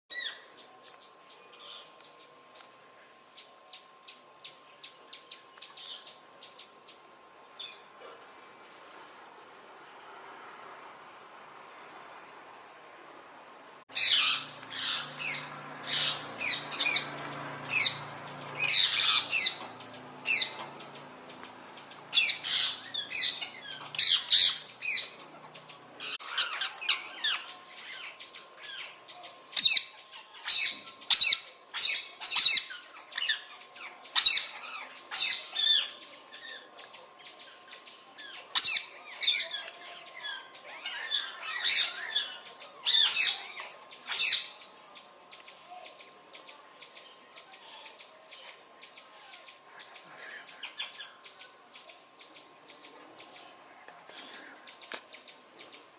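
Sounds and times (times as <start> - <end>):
parrots squawking: 13.9 - 25.2, 26.0 - 27.5, 38.5 - 44.6.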